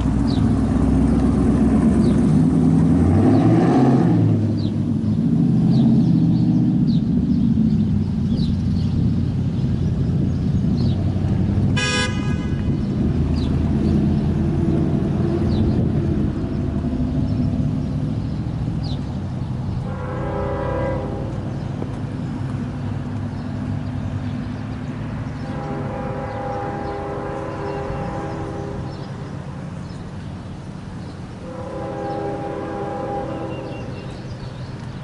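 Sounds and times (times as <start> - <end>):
locomotive engine rumble: 0.0 - 35.0
locomotive horn blasts: 11.7 - 12.8, 19.8 - 21.6, 25.4 - 29.4, 31.4 - 34.3.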